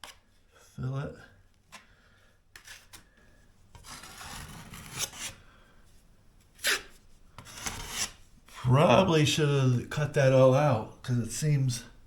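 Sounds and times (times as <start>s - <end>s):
short sharp scrape: 3.8s - 5.4s, 6.6s - 8.2s.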